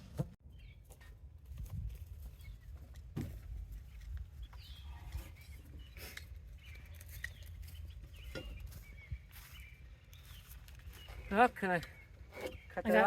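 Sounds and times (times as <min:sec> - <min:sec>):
faint bird chirps: 0:03.8 - 0:12.9.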